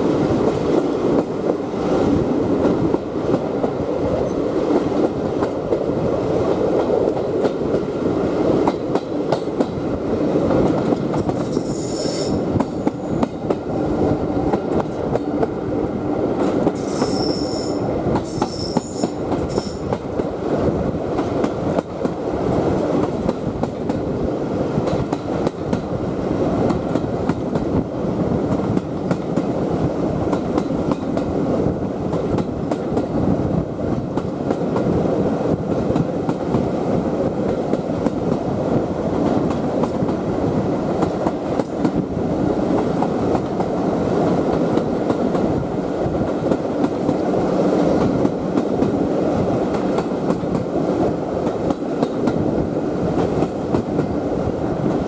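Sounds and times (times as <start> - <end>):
rail clicks: 0.0 - 54.2
wheels rumbling on rail: 0.0 - 55.0
high-pitched wheel squeal: 16.8 - 19.8.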